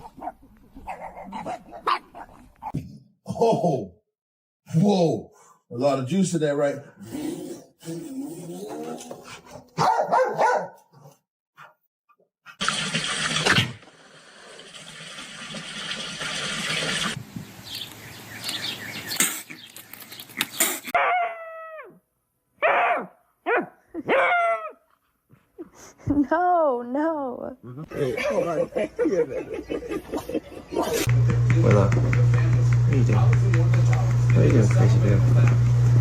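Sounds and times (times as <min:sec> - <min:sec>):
dog barking and whining: 0:08.8 - 0:11.7, 0:21.0 - 0:22.0, 0:22.6 - 0:24.8.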